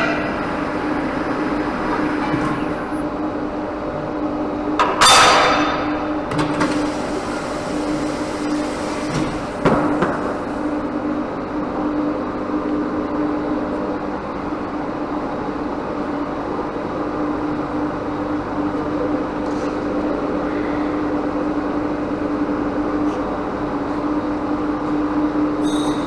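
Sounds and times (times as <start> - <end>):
workshop machine humming: 6.2 - 11.4.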